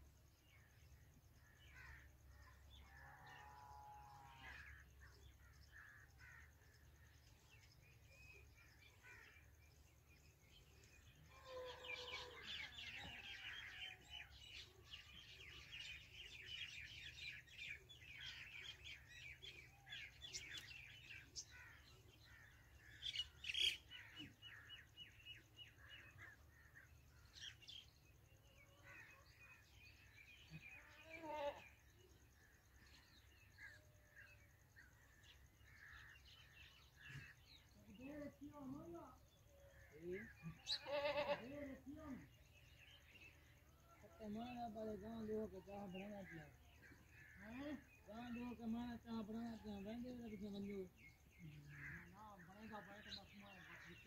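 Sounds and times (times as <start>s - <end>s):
birds chirping: 0.0s - 54.0s
sharp harsh bird calls: 39.7s - 42.4s.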